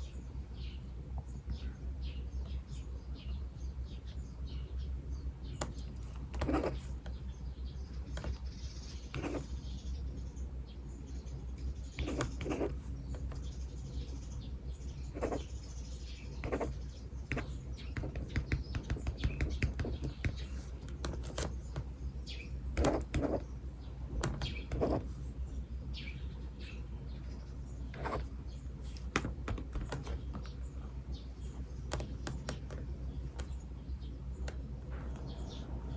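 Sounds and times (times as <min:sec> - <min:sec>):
birds chirping: 0:00.0 - 0:35.9
steady low hum: 0:00.0 - 0:35.9
pen writing on paper: 0:05.6 - 0:07.1, 0:08.1 - 0:09.5, 0:11.9 - 0:13.3, 0:15.1 - 0:15.8, 0:16.4 - 0:21.6, 0:22.8 - 0:23.5, 0:24.2 - 0:25.3, 0:28.0 - 0:30.2.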